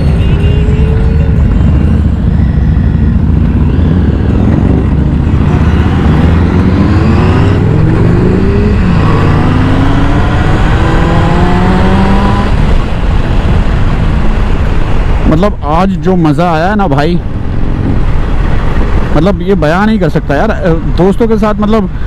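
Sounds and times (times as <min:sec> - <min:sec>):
motorcycle engine accelerating: 0:00.0 - 0:15.2
wind rumble: 0:00.0 - 0:21.0.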